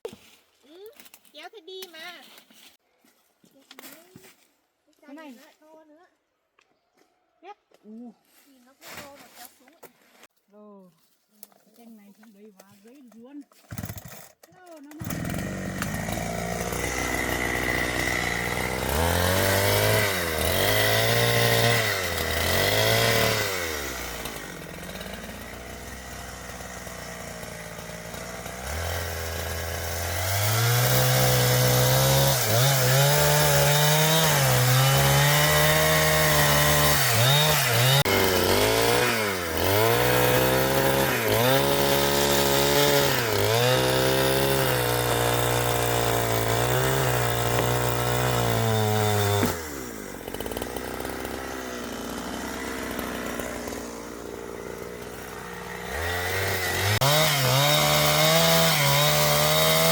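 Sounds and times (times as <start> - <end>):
chainsaw cutting timber: 13.5 - 59.9.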